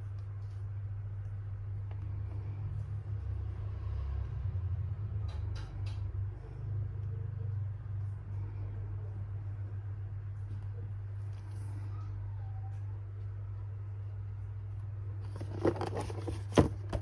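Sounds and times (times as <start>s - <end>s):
steady low hum: 0.0s - 17.0s
packing material rustling: 15.3s - 17.0s.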